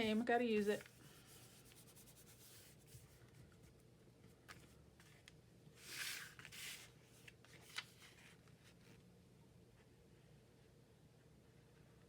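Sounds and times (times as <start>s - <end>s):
paper rustling: 5.8s - 8.7s.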